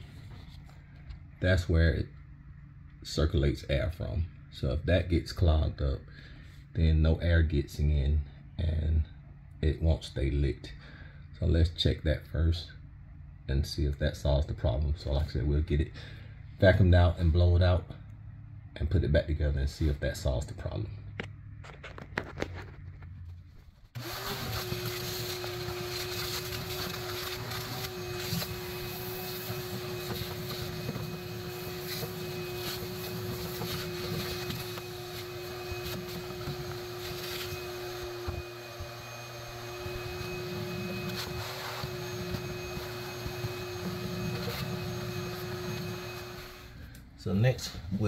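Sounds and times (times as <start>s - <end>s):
vacuum cleaner whining: 24.0s - 48.0s.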